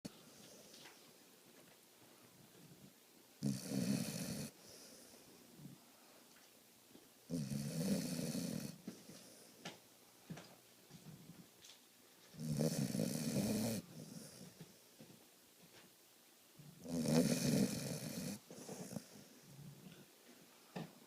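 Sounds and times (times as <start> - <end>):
dog snoring: 3.4 - 4.6, 7.3 - 8.9, 12.4 - 14.6, 16.8 - 19.2
dog breathing and snuffling: 17.0 - 19.8.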